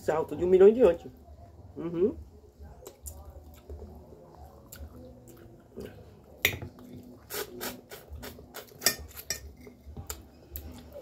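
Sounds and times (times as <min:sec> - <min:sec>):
chewing: 0:02.7 - 0:11.0.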